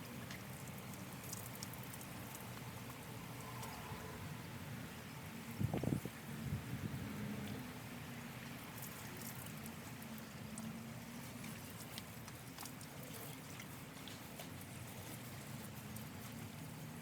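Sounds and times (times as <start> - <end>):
water pouring onto plants: 0.0 - 3.9, 8.0 - 17.0
water dripping: 0.1 - 3.8.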